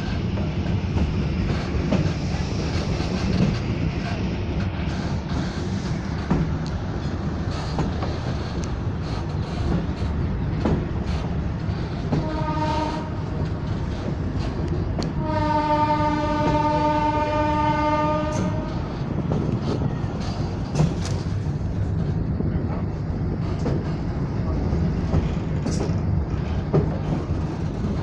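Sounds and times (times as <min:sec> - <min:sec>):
train rumbling on rails: 0:00.0 - 0:28.0
train horn blasts: 0:12.1 - 0:13.4, 0:15.0 - 0:18.9.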